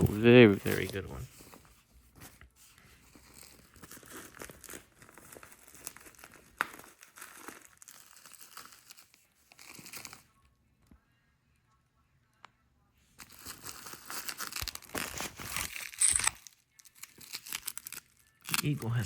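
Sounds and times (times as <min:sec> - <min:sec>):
packaging crinkling: 0:02.7 - 0:10.3, 0:13.2 - 0:19.0.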